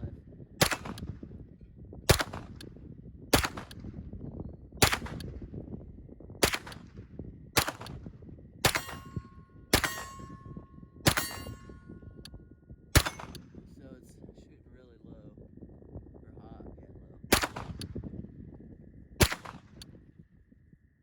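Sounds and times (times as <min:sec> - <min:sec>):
gunshots with echo: 0:00.6 - 0:01.2, 0:02.1 - 0:02.6, 0:03.3 - 0:03.9, 0:04.8 - 0:05.2, 0:06.4 - 0:07.0, 0:07.6 - 0:12.1, 0:13.0 - 0:13.6, 0:17.3 - 0:18.0, 0:19.2 - 0:19.8
steady ringing tone: 0:08.7 - 0:13.6.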